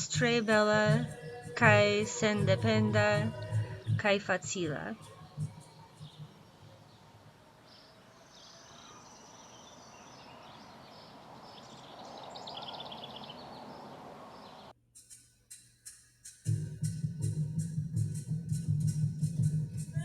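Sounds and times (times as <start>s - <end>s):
small birds chirping: 0.0s - 15.2s.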